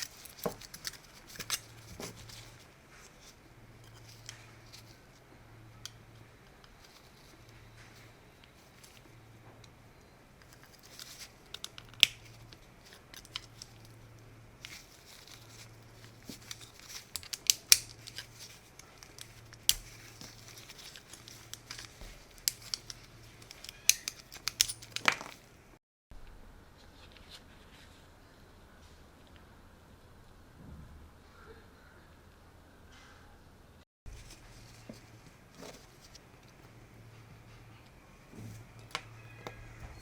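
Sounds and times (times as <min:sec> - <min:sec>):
clicks snips and crinkles: 0:00.0 - 0:05.2, 0:10.4 - 0:25.6.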